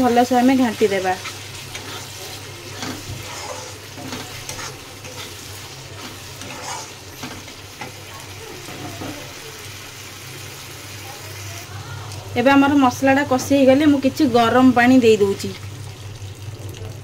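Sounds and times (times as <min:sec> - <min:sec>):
paste sizzling in oil: 0:00.0 - 0:11.7
spatula scraping a pan: 0:00.8 - 0:08.0.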